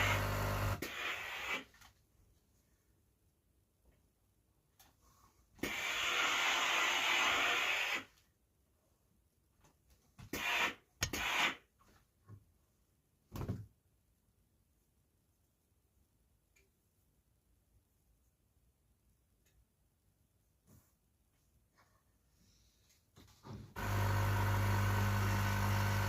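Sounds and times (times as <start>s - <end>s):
steam iron hissing: 5.6s - 8.1s, 23.8s - 26.0s.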